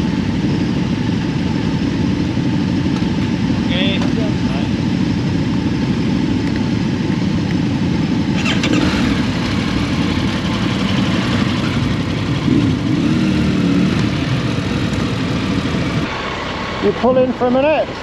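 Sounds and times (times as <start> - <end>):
motorcycle engine on the road: 0.0 - 18.0.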